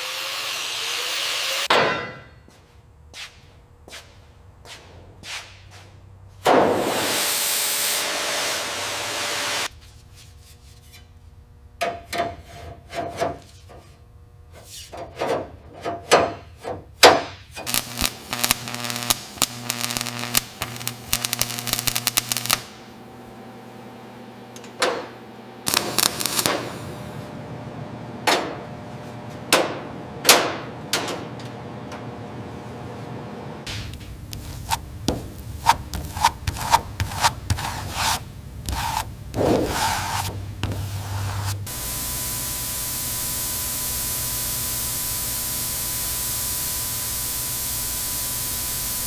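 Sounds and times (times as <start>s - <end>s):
knocks and scrapes: 33.7s - 41.7s
loud hissing noise: 38.8s - 49.0s.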